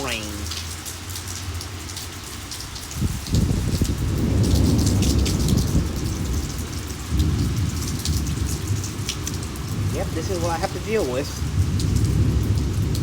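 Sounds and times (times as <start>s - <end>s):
heavy rain pouring: 0.0s - 13.0s
low rumble of thunder: 2.9s - 13.0s.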